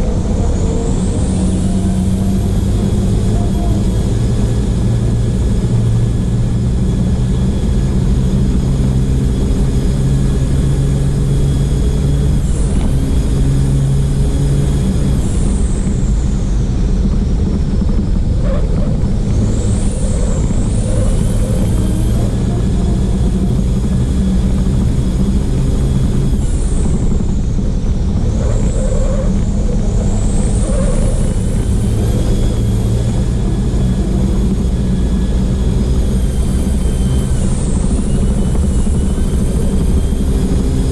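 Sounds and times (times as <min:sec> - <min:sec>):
diesel truck engine under load: 0:00.0 - 0:40.9
high whistle sweeping: 0:28.6 - 0:40.8.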